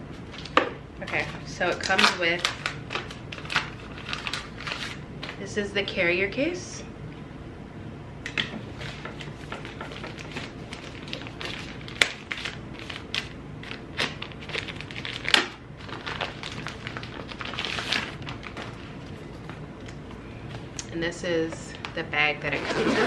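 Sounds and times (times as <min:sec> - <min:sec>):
plastic packaging crinkling: 0:00.2 - 0:05.4, 0:08.7 - 0:20.0.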